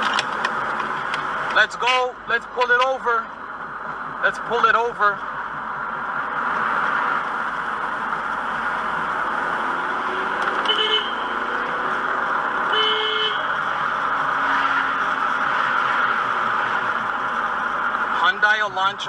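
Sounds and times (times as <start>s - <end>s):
car driving noise: 0.0s - 19.0s
car horn honking: 10.6s - 11.6s, 12.6s - 13.6s.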